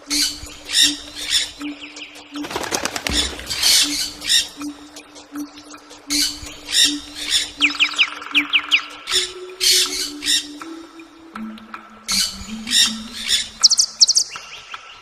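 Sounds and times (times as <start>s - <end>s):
birds squawking raspily: 0.1s - 10.6s.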